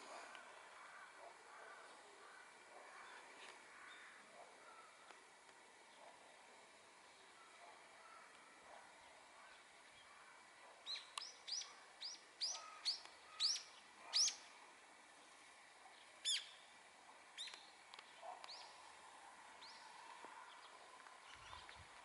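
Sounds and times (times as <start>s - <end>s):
faint outdoor hiss: 0.0s - 22.0s
songbird chirping: 10.8s - 14.5s, 17.4s - 18.9s.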